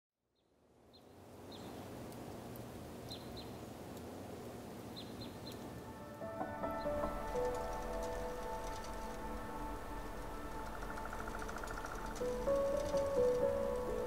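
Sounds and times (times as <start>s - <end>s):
music: 5.8s - 14.0s
high bird chirps: 10.2s - 13.2s.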